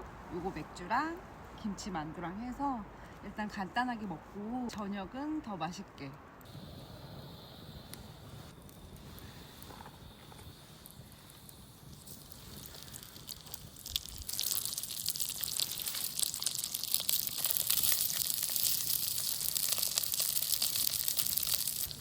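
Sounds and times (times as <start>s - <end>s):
dumplings sizzling in oil: 6.6s - 22.0s.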